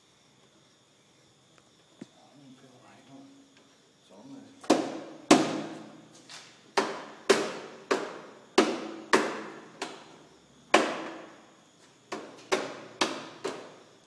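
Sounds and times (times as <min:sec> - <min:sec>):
sharp echoing knocks: 0:04.6 - 0:05.9, 0:06.8 - 0:10.1, 0:10.7 - 0:11.4, 0:12.1 - 0:13.8.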